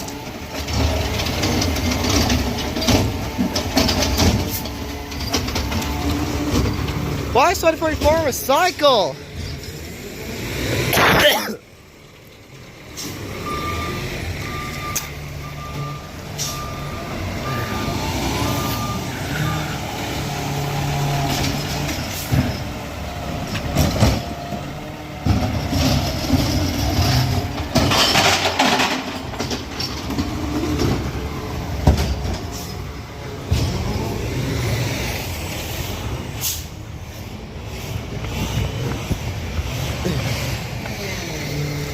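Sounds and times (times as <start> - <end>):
garbage truck running: 0.0 - 41.9.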